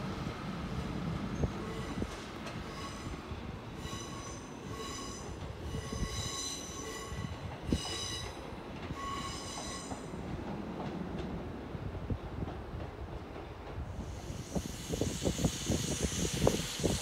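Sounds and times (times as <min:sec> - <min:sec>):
train rolling rumble: 0:00.0 - 0:17.0
train wheels squealing: 0:01.3 - 0:10.2, 0:14.0 - 0:17.0.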